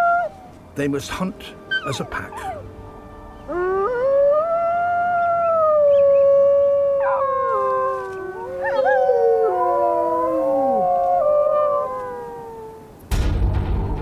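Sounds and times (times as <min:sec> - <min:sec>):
wolves howling: 0:00.0 - 0:00.6, 0:01.7 - 0:02.7, 0:03.5 - 0:13.0.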